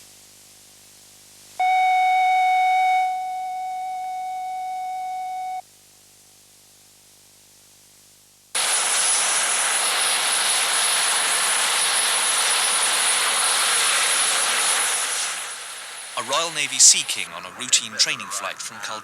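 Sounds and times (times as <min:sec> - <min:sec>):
helicopter engines and rotor: 0:08.6 - 0:19.0
faint hum: 0:14.4 - 0:19.0.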